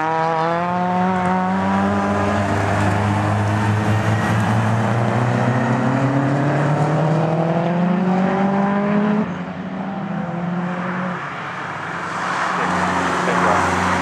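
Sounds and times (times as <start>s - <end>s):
race car engine accelerating: 0.0s - 11.2s.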